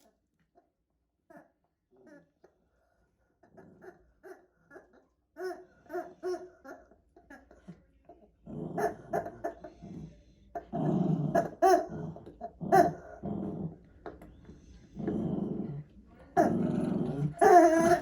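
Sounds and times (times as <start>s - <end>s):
puppies growling: 8.4s - 14.2s, 14.8s - 18.0s.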